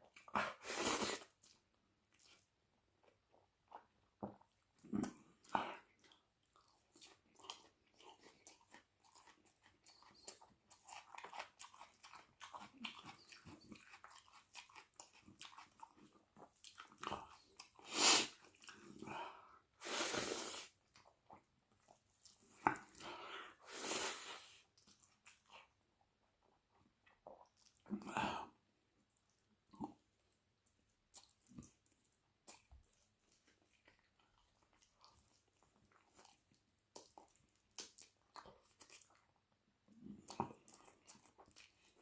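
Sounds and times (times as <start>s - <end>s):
chewing and crunching food: 0.0s - 20.0s, 20.6s - 42.0s.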